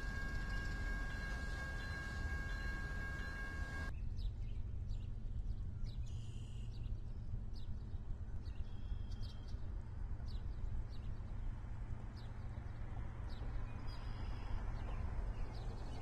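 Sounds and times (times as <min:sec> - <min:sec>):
birds chirping: 0:00.0 - 0:03.9
buzzy bird trill: 0:00.0 - 0:03.9
chord of high tones: 0:00.0 - 0:03.9
steady low rumble: 0:00.0 - 0:03.9.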